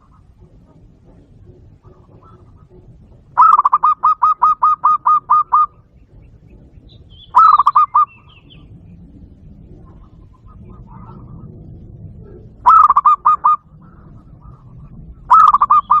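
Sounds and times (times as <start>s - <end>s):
dove cooing: 0.0s - 16.0s
small bird chirping: 3.4s - 10.9s.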